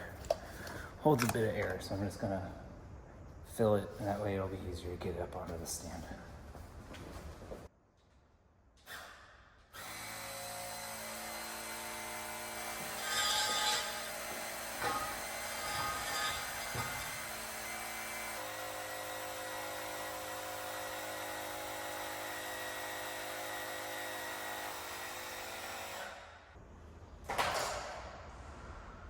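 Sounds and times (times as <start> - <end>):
tire inflator whining: 11.8 - 26.4.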